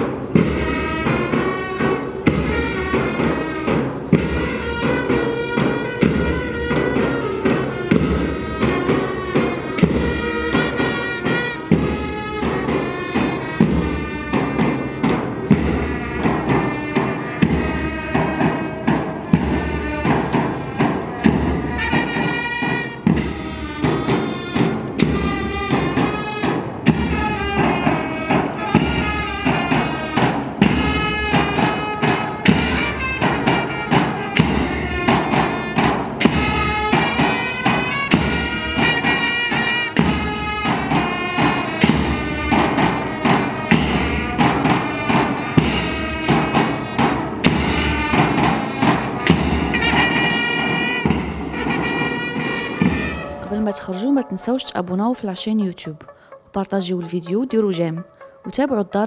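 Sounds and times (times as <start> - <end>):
upbeat music: 52.6 - 59.0.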